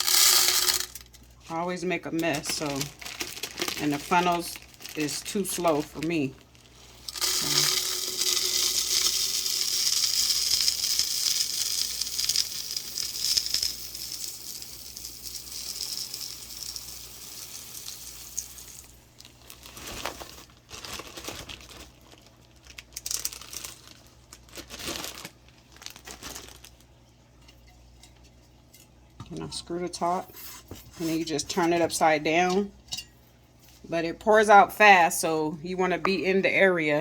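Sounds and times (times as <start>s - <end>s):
bird seed pouring: 7.0s - 20.2s.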